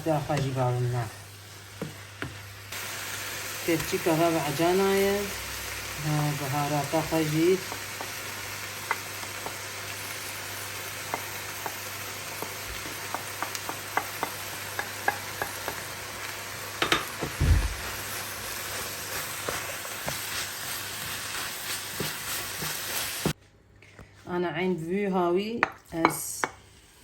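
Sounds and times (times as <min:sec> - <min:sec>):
food sizzling in hot oil: 0:00.0 - 0:23.4
dull knock: 0:17.2 - 0:17.9.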